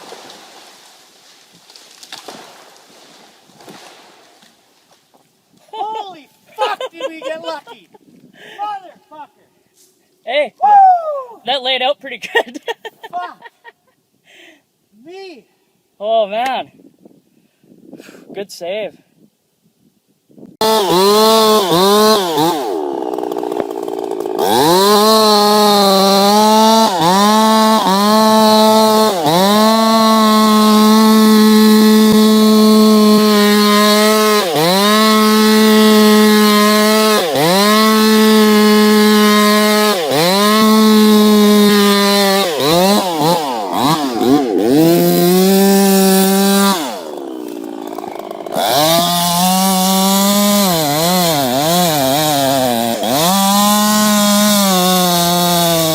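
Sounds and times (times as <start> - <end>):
chainsaw cutting wood: 0.0 - 4.6, 20.6 - 55.9.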